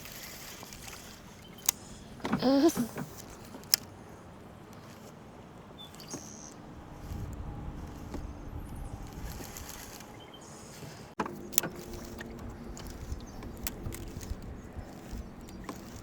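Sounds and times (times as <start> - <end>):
fishing reel whirring: 0.0 - 16.0
wind on microphone: 6.6 - 10.3.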